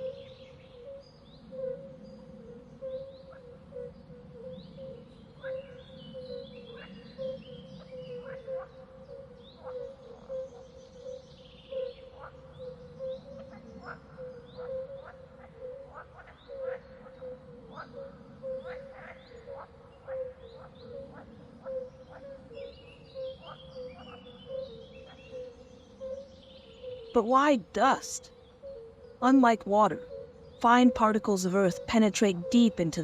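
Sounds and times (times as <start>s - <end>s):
birds chirping: 22.9s - 28.3s, 29.0s - 33.0s.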